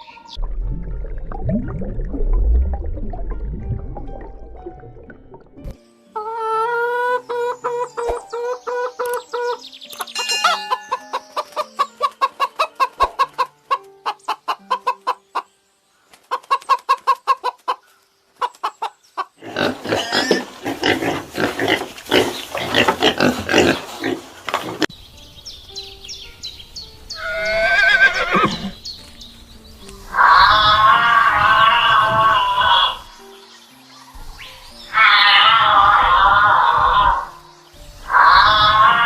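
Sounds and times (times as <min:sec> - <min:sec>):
chickens clucking: 0:06.2 - 0:15.5, 0:16.1 - 0:24.9.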